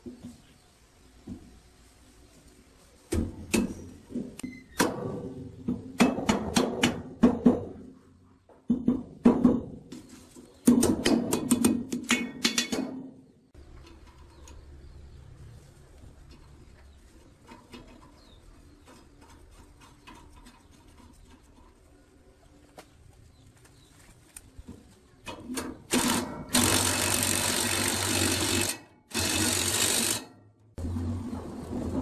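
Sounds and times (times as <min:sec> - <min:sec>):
power tool rushing noise: 0:25.9 - 0:32.0.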